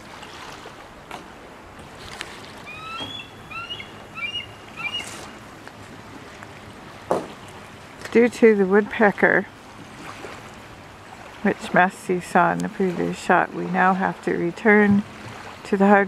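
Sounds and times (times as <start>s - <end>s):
water: 0.0s - 16.0s
wind: 0.0s - 16.0s
hooked bird calls: 2.7s - 5.3s.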